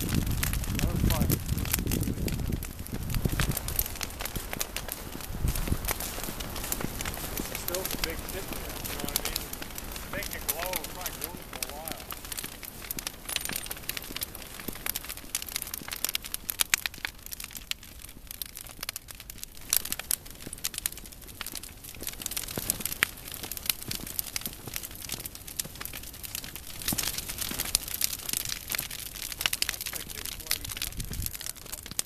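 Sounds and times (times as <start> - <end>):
bonfire crackling and popping: 0.0 - 32.0
low fire rumble: 0.0 - 32.0.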